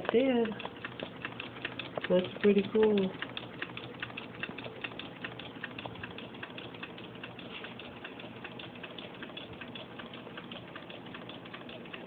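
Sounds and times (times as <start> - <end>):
engine clicking rapidly: 0.0 - 12.0.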